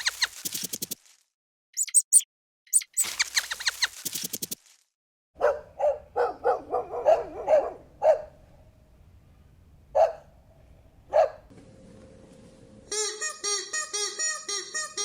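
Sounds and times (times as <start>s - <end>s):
dog barking: 5.4s - 8.4s, 9.9s - 10.3s, 11.1s - 11.5s.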